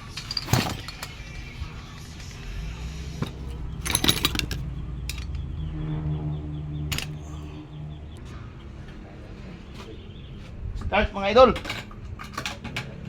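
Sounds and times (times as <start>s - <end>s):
metal tools clinking: 0.0s - 1.9s, 3.2s - 5.5s, 6.9s - 7.6s.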